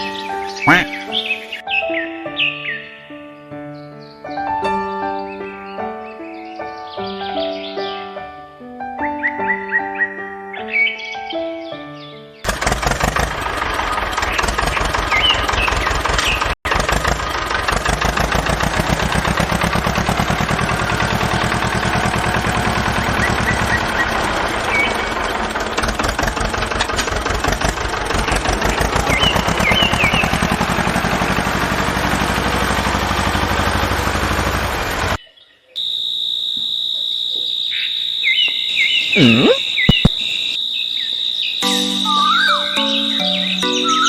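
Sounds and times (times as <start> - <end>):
motor engine running: 12.5 - 35.2.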